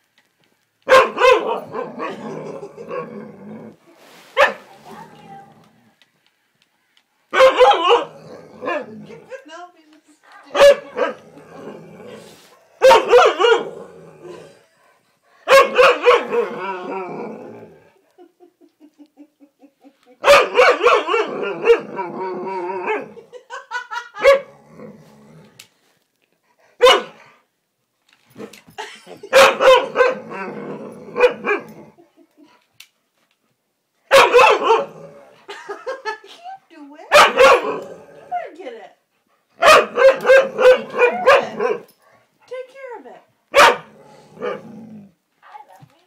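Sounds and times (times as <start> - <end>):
husky barking and howling: 0.9 - 3.8, 7.3 - 9.4, 10.4 - 14.5, 15.4 - 17.8, 20.2 - 23.3, 29.3 - 32.0, 34.1 - 35.4, 37.1 - 38.5, 39.6 - 42.0, 43.5 - 45.0.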